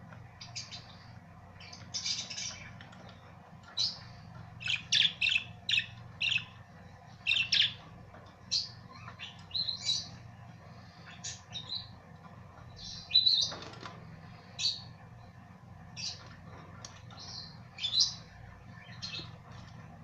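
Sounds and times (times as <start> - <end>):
budgerigars chirping: 0.4 - 2.7, 3.8 - 6.5, 7.2 - 7.8.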